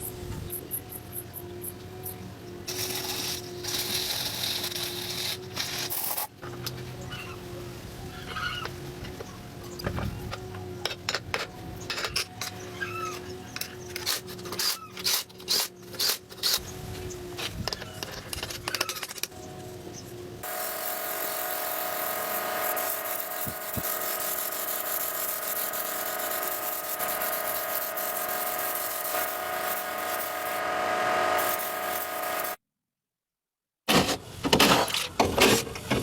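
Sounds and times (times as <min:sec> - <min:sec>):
power tool whining: 0:20.4 - 0:32.6.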